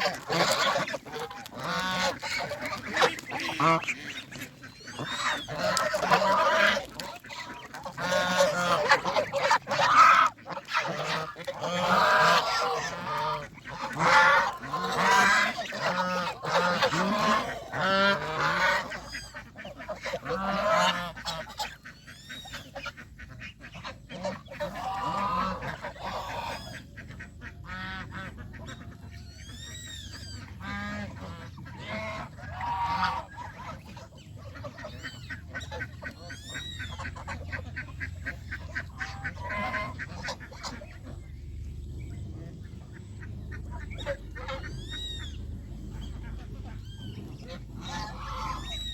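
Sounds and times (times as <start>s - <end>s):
geese honking: 0.0s - 48.9s
small birds chirping: 10.4s - 48.9s.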